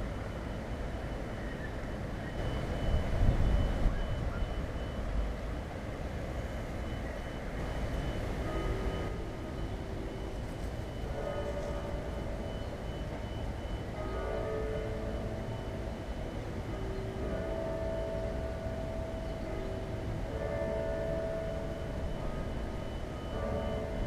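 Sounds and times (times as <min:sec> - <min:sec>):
traffic low rumble: 0:00.0 - 0:24.0
faint rapid high beep: 0:00.4 - 0:05.3, 0:06.3 - 0:14.0.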